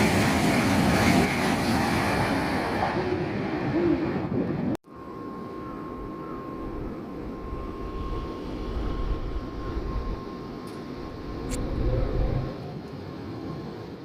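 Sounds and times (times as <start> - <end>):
train low rumble: 0.0 - 14.0
faint steady whine: 4.8 - 14.0.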